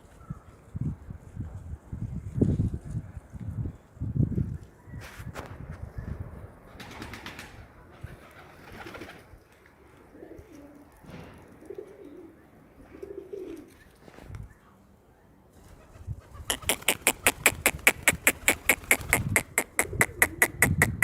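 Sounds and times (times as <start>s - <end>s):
pigeons cooing: 9.9s - 13.8s, 15.8s - 21.0s.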